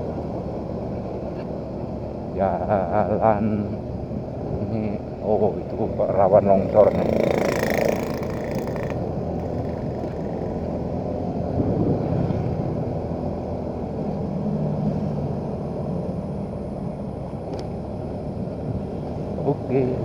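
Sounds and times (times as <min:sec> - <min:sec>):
motorcycle engine running: 0:05.3 - 0:13.0.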